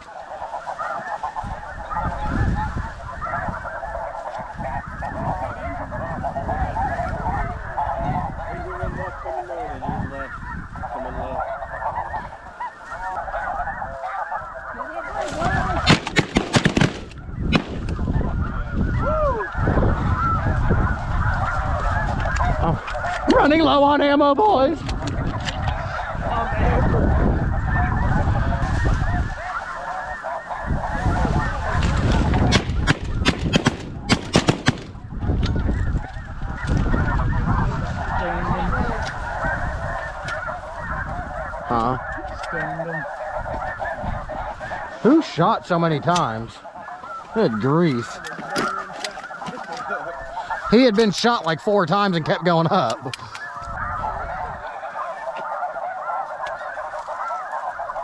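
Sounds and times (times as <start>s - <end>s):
geese honking: 0.0s - 58.0s
shotgun shots: 15.8s - 17.9s, 32.5s - 35.0s.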